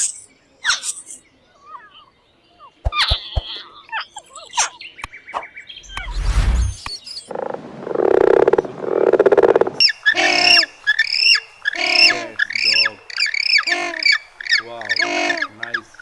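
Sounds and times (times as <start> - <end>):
animal chirps and clicks: 2.8 - 6.2
low pulsing animal calls: 5.8 - 16.0
loud squawk: 9.8 - 16.0.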